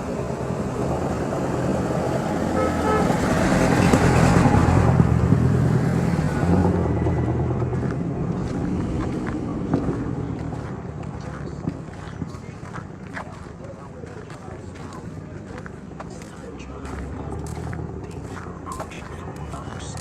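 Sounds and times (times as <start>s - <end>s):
vehicle passing by: 0.0s - 20.0s
short horn toot: 2.6s - 3.2s.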